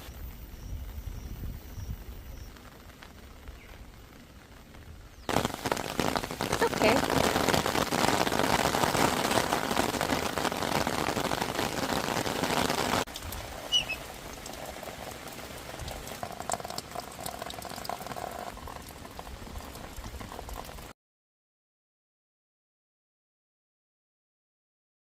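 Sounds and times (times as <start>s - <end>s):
heavy rain falling: 0.0s - 21.0s
high bird chirp: 13.7s - 14.1s.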